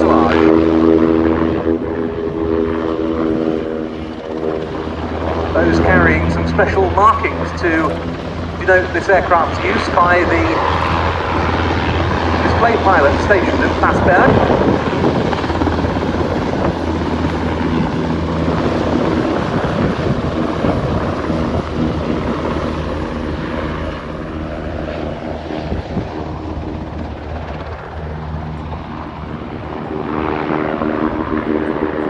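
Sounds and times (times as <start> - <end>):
helicopter rotor beat: 0.0 - 32.0.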